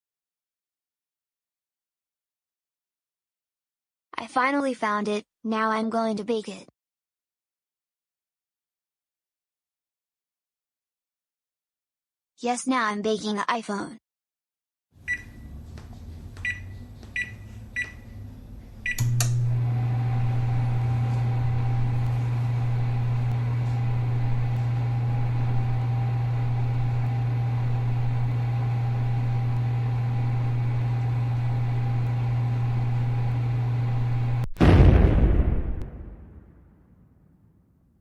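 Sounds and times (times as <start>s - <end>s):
microwave keypad beeps: 15.0s - 15.5s, 16.4s - 18.1s, 18.8s - 19.2s
microwave running hum: 15.0s - 34.5s
microwave starting click: 16.4s - 34.4s
loud bang: 34.6s - 37.2s.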